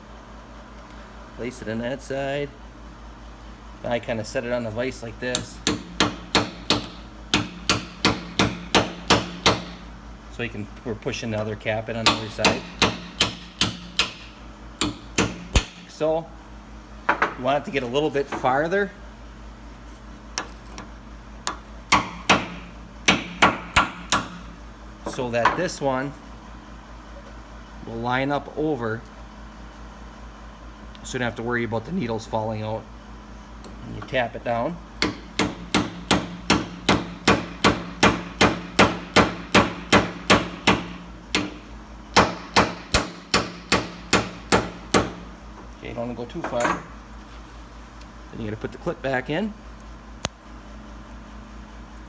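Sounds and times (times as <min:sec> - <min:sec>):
hammer tapping metal: 0:05.3 - 0:09.8, 0:12.0 - 0:15.8, 0:21.5 - 0:24.4, 0:35.0 - 0:45.2.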